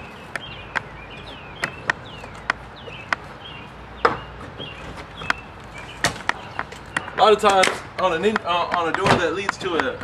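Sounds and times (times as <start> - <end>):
birds chirping: 0.0 - 10.0
pry bar knocking on wood: 6.1 - 10.0.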